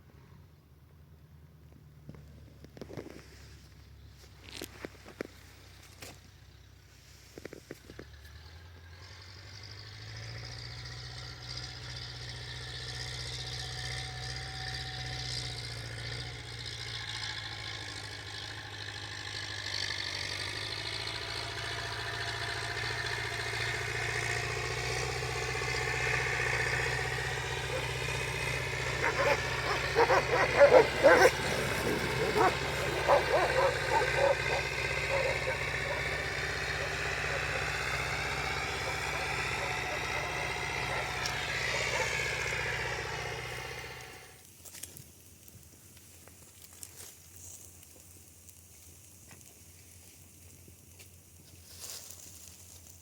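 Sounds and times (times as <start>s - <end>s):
vehicle engine running: 0.8s - 44.4s
dogs barking: 26.4s - 43.7s.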